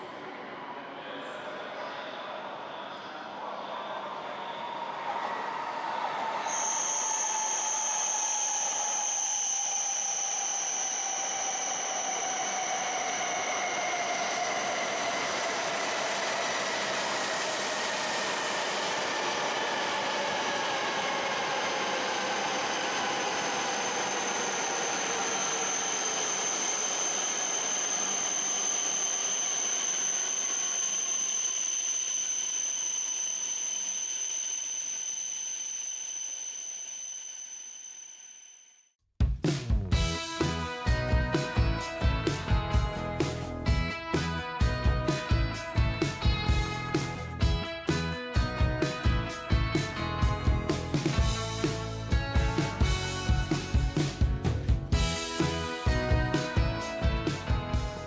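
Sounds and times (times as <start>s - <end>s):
steady high-pitched tone: 6.4s - 38.7s.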